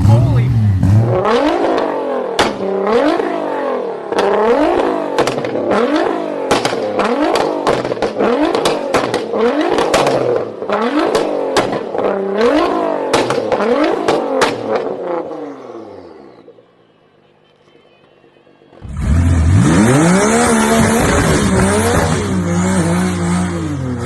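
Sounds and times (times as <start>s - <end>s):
car engine revving: 0.0s - 16.6s, 18.8s - 24.0s
exhaust pops: 4.2s - 5.7s.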